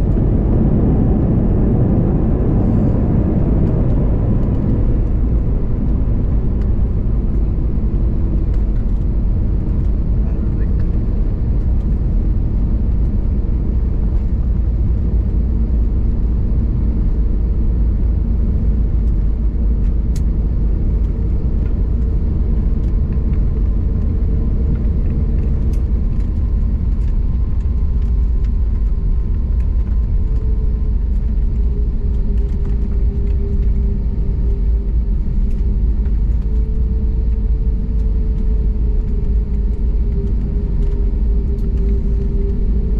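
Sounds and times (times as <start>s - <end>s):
airplane cabin engine rumble: 0.0s - 42.9s.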